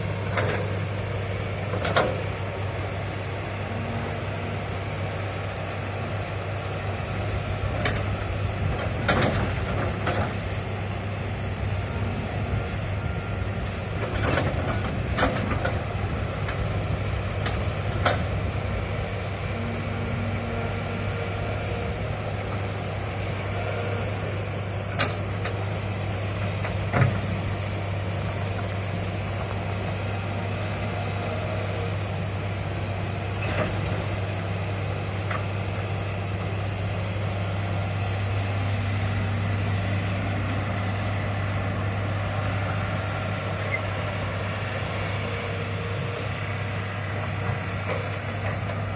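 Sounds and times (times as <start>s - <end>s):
excavator diesel engine droning: 0.0s - 48.9s.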